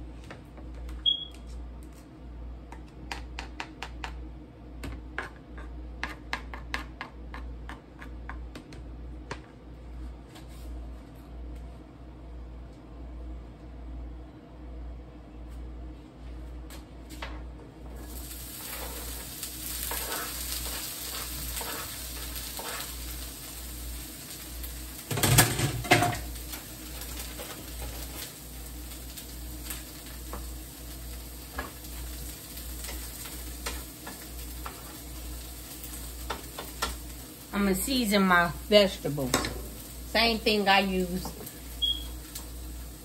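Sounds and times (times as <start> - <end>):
vegetables sizzling in a pan: 17.9 - 43.0.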